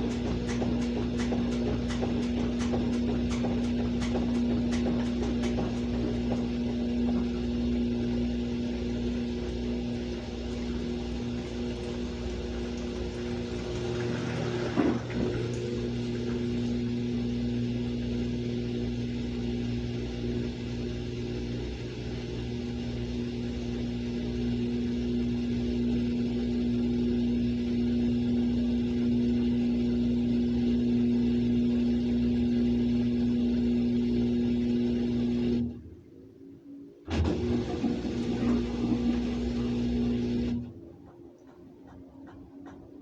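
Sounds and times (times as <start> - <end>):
washing machine motor hum: 0.0 - 43.0.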